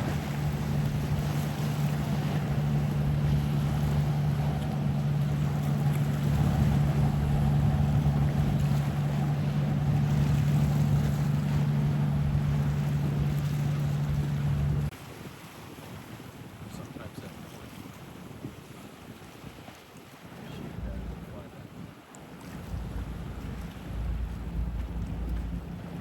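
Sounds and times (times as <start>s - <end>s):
boat engine humming: 0.0s - 14.9s, 20.4s - 21.4s, 22.2s - 26.0s
water noise: 0.0s - 16.7s, 17.6s - 26.0s
wind: 0.0s - 26.0s.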